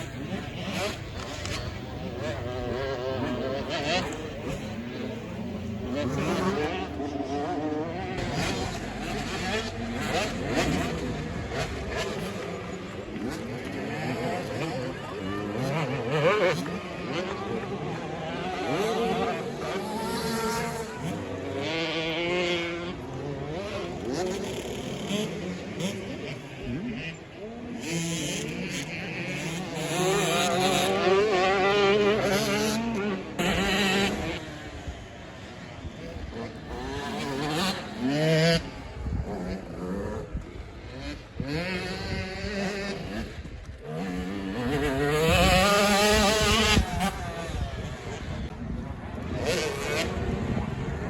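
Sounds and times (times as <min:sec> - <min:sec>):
dirt bike engines revving: 0:00.0 - 0:51.0.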